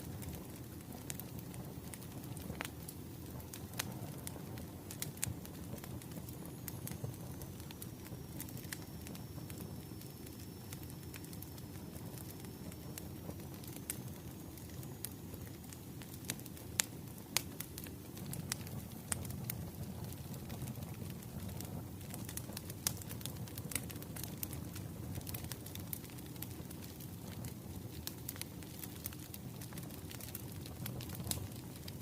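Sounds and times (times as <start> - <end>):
firewood crackling: 0.0 - 32.0.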